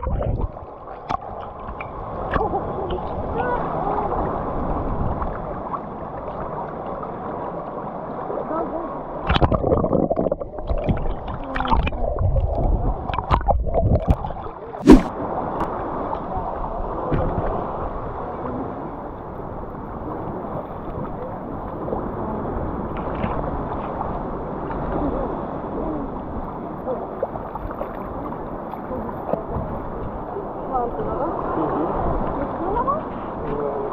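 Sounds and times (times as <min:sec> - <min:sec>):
small waves washing: 0:00.0 - 0:33.9
water sloshing and gurgling: 0:00.0 - 0:33.9
sharp knock: 0:14.8 - 0:15.1.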